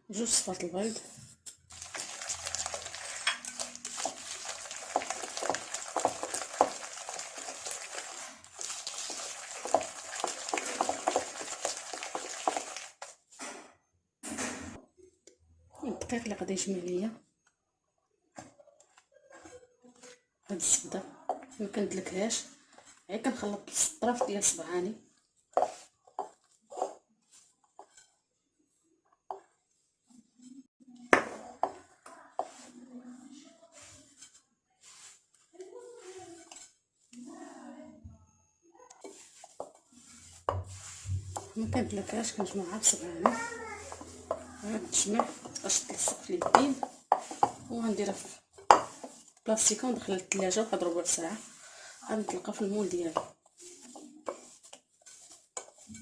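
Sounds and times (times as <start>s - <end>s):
utensil scraping a bowl: 0.4s - 13.2s, 25.6s - 28.2s, 36.0s - 37.2s, 39.0s - 56.0s.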